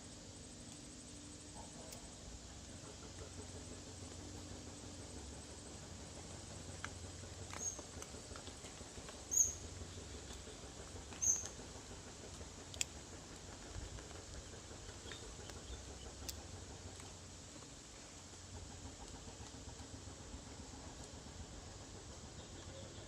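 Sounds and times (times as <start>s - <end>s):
steady hiss: 0.0s - 23.0s
faint clicks: 6.2s - 21.2s
nestling bird squeaking: 9.3s - 9.6s, 11.2s - 11.5s.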